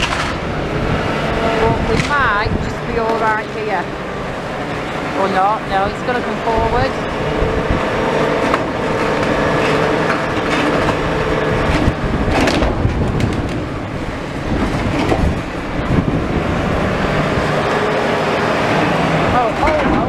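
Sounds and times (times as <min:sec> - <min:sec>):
steady whine: 0:00.0 - 0:20.0
truck engine running: 0:00.0 - 0:20.0.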